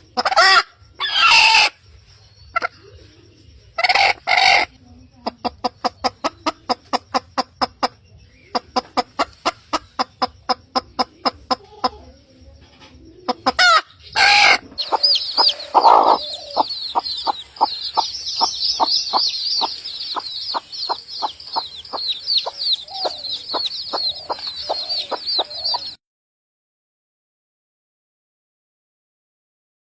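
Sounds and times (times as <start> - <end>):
chickens clucking: 0.0 - 26.0
high-pitched chirping: 13.5 - 26.0.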